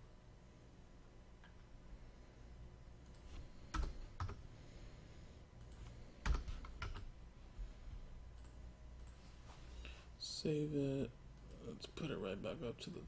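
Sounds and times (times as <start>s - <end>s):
computer keyboard typing: 3.1s - 4.4s, 5.6s - 7.1s.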